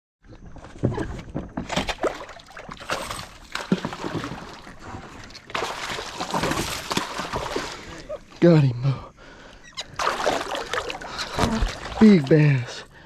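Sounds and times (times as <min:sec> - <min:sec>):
water splashing: 0:01.7 - 0:08.4, 0:09.4 - 0:13.0.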